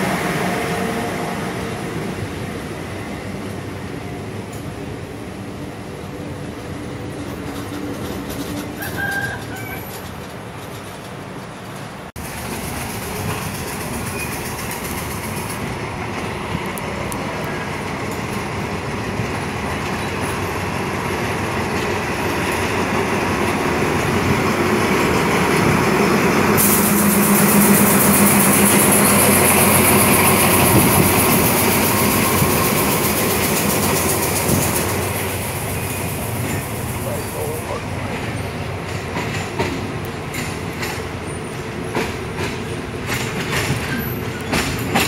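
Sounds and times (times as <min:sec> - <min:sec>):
train rumbling on rails: 0:00.0 - 0:45.0
high hiss: 0:26.6 - 0:37.8.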